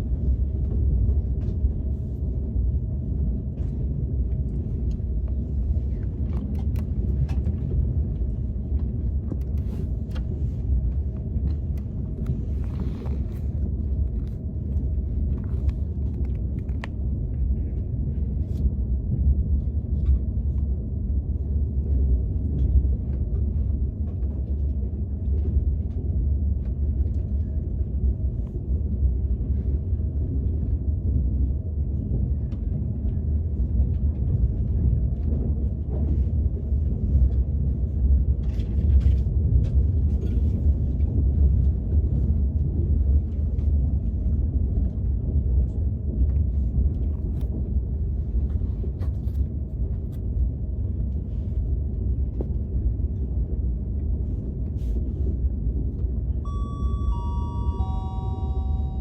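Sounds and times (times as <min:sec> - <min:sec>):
train interior rumble: 0:00.0 - 0:59.0.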